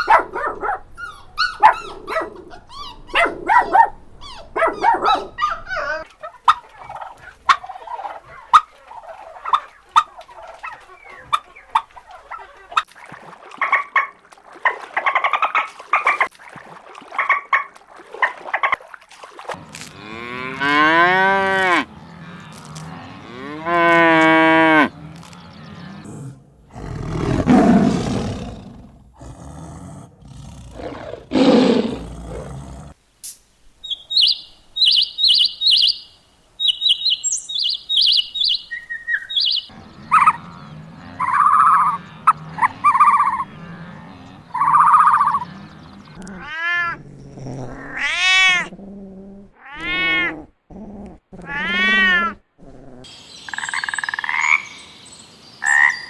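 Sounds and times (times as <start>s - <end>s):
cattle mooing: 19.6s - 26.2s, 39.7s - 46.3s
high chirps: 33.2s - 40.4s
rising and falling animal calls: 33.8s - 47.0s.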